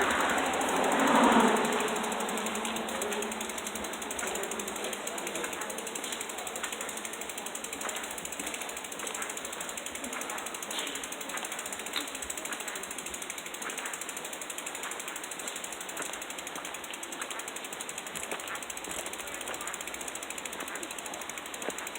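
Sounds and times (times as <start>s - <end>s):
bicycle freewheel ticking: 0.0s - 21.9s
sharp clicks: 0.0s - 21.9s.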